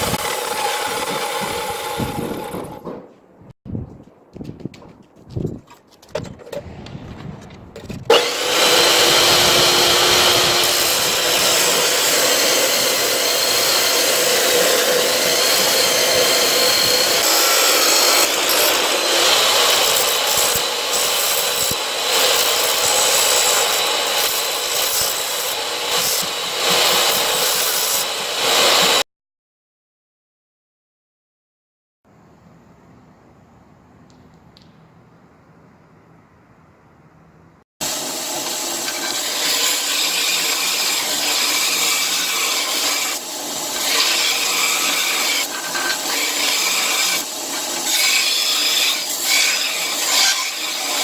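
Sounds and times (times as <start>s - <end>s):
power grinder grinding steel: 0.0s - 2.9s, 8.1s - 29.0s, 37.8s - 51.0s.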